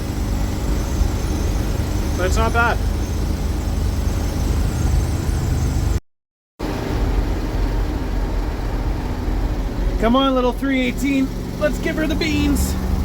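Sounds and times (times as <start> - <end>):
engine droning at cruising speed: 0.0 - 6.0, 6.6 - 13.0
road noise: 0.0 - 6.0, 6.6 - 13.0.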